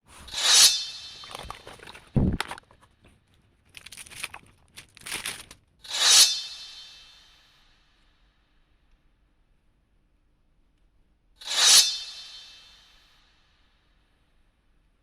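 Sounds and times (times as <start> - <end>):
packaging crinkling and rustling: 1.2 - 5.7.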